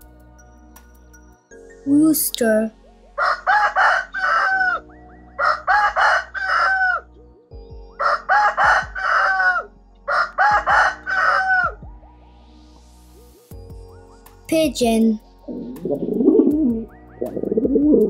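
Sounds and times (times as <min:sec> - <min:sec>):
soft background music: 0:00.0 - 0:18.0
rooster crowing: 0:03.2 - 0:04.8, 0:05.4 - 0:07.1, 0:08.0 - 0:11.8.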